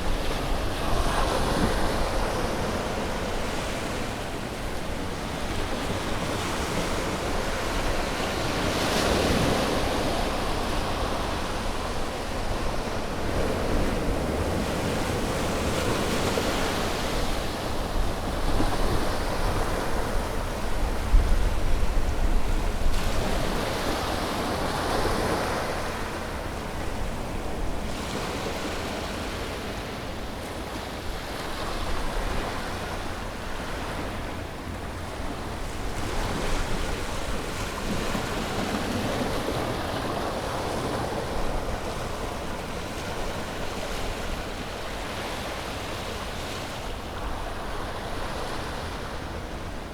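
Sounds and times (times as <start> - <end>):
wind rumble on microphone: 0.0 - 29.0
sea waves breaking on shore: 0.0 - 49.9.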